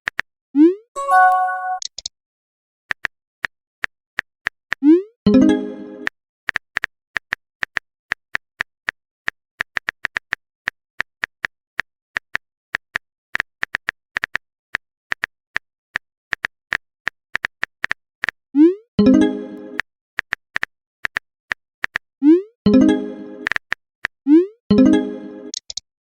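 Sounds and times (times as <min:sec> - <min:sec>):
message chime: 0:01.0 - 0:01.8, 0:05.3 - 0:06.0, 0:19.0 - 0:19.8, 0:22.7 - 0:23.4, 0:24.7 - 0:25.4.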